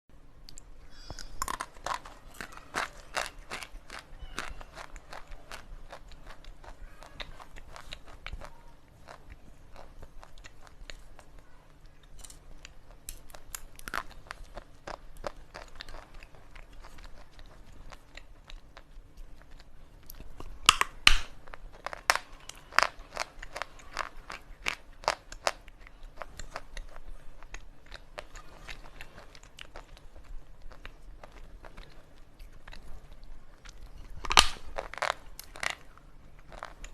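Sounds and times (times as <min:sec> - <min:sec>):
slate pencil being chewed: 0:00.5 - 0:11.4.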